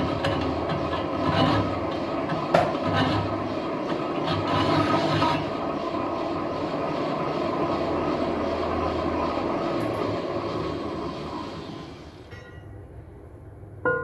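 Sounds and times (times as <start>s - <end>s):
metal lathe running: 0.0s - 12.5s.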